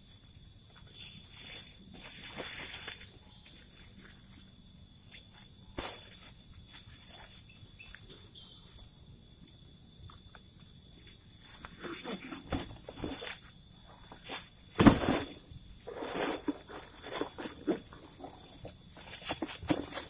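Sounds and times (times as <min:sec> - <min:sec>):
insects chorus: 0:00.0 - 0:20.0
rustle: 0:00.1 - 0:08.1.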